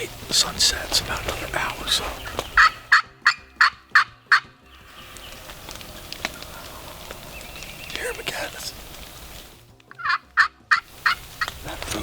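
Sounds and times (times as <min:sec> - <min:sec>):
rain pattering: 0:00.0 - 0:02.7, 0:04.8 - 0:10.0, 0:10.8 - 0:12.0
turkey yelps: 0:01.9 - 0:04.4, 0:06.2 - 0:07.4, 0:09.9 - 0:11.6.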